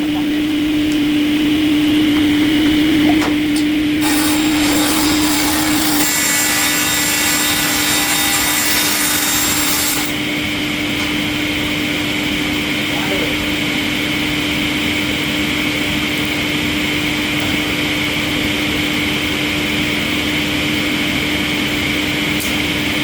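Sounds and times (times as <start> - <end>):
wood-processing machine humming: 0.0 - 13.8
machine hissing cutting wood: 4.0 - 10.2.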